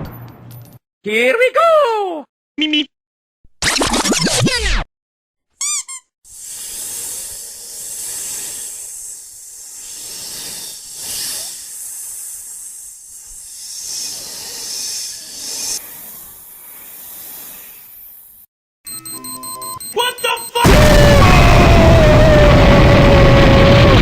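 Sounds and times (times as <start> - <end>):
pitched chirp: 5.6 - 6.0, 18.9 - 20.7.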